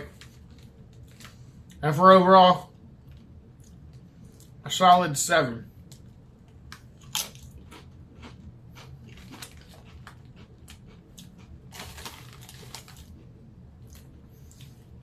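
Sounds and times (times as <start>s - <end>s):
person crunching potato chips: 6.7s - 14.8s.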